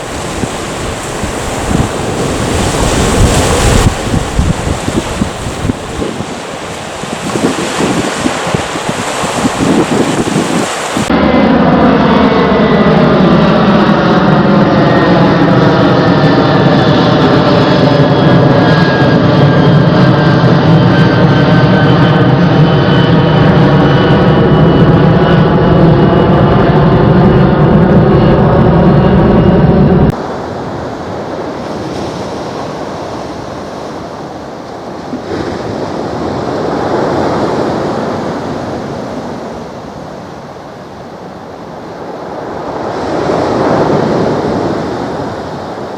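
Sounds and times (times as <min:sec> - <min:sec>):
wind-like rush: 0:00.0 - 0:12.6, 0:24.6 - 0:45.9
jet engines roaring past: 0:00.0 - 0:45.9.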